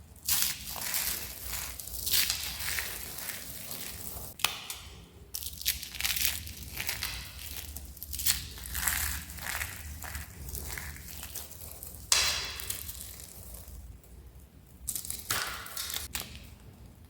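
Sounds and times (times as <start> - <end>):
dried soap crunching: 0.2 - 4.5, 5.3 - 13.8.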